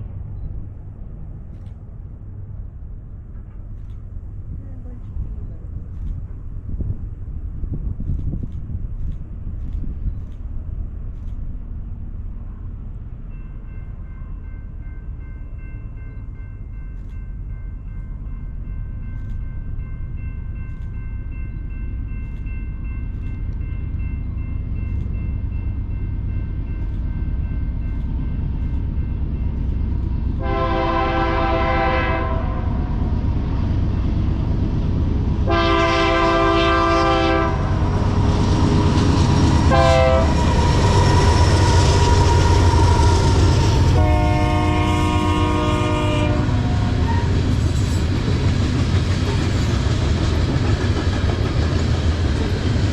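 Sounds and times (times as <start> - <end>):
diesel locomotive engine rumble: 0.0 - 52.9
train air horn: 30.4 - 32.8, 35.4 - 38.0, 39.6 - 47.4.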